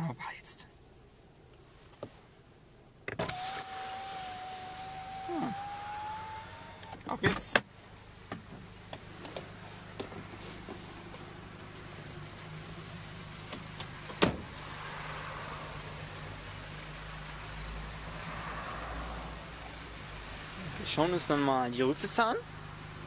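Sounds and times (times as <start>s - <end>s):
car engine idling: 2.6s - 23.0s
car door shutting: 13.5s - 14.6s.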